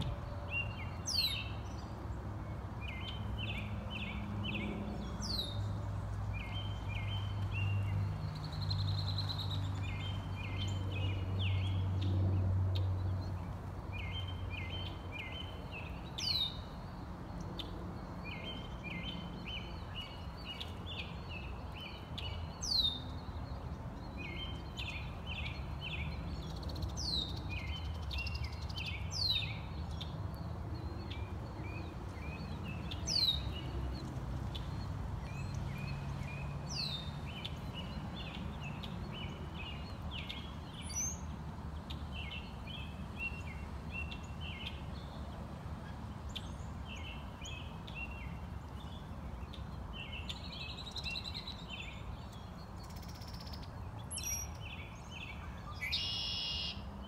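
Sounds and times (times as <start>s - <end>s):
bird chirping: 46.3s - 56.9s.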